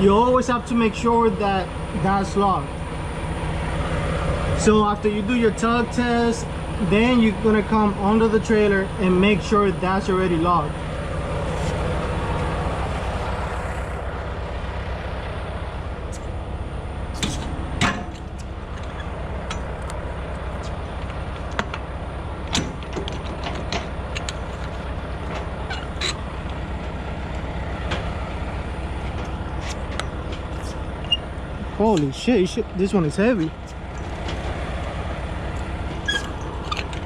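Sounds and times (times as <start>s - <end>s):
diesel truck engine idling: 0.0s - 37.0s
sharp clicks and knocks: 17.2s - 20.0s, 20.6s - 21.9s, 22.5s - 26.6s.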